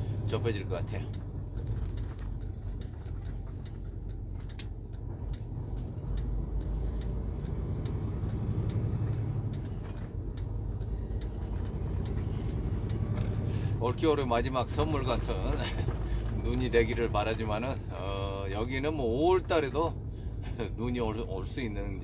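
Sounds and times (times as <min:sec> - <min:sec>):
truck engine and road drone: 0:00.0 - 0:22.0
light ticking: 0:00.2 - 0:15.5.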